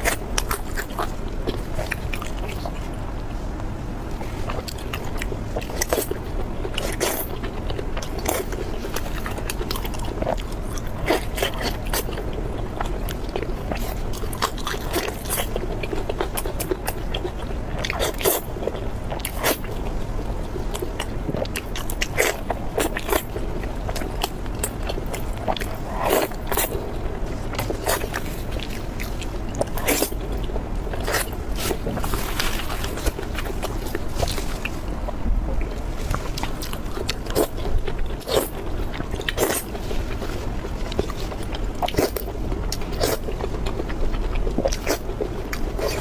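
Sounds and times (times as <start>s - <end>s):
chewing crispy food: 0.0s - 46.0s
low hum: 0.0s - 46.0s.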